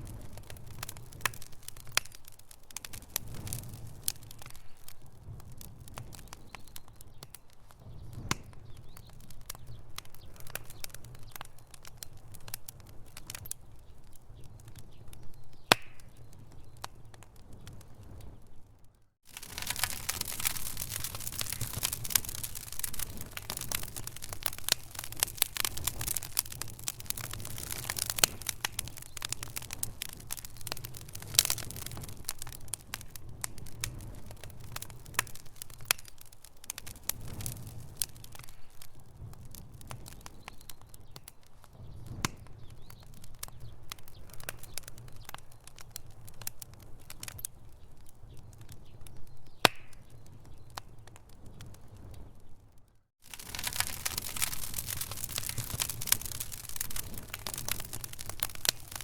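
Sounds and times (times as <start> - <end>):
low steady fire rumble: 0.0 - 59.0
wood fire crackling and popping: 0.0 - 59.0.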